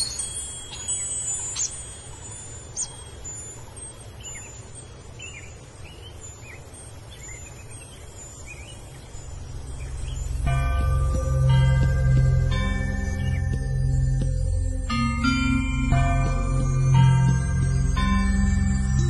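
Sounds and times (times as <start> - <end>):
small birds chirping: 0.0 - 19.0
sustained musical tones: 9.2 - 19.0
low rumble: 9.3 - 19.0.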